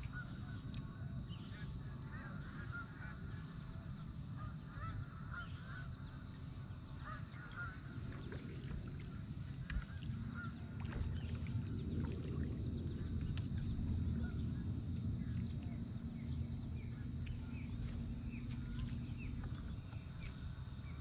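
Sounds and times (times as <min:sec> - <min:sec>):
low steady hum: 0:00.0 - 0:21.0
birds honking: 0:01.6 - 0:03.5, 0:04.4 - 0:08.4.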